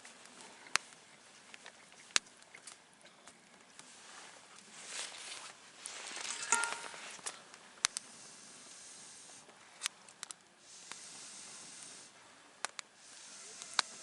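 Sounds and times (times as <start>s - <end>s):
campfire hissing: 0.0s - 14.0s
fire crackling pops: 0.0s - 14.0s.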